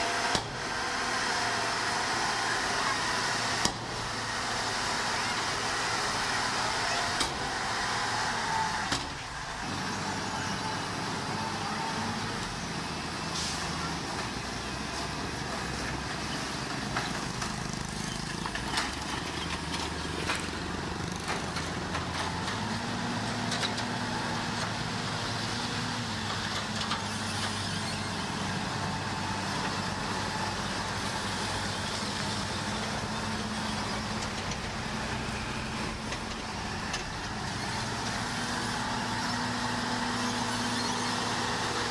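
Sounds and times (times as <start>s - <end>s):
heavy machinery diesel engine: 0.0s - 41.9s.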